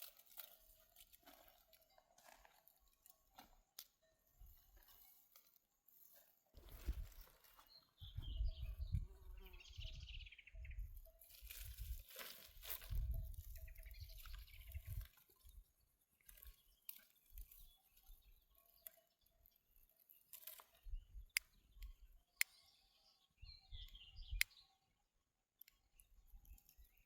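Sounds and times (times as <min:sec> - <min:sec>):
faint bird chirps: 0:06.8 - 0:12.1, 0:12.8 - 0:27.0
wind rumbling on microphone: 0:08.0 - 0:12.0, 0:12.8 - 0:15.1.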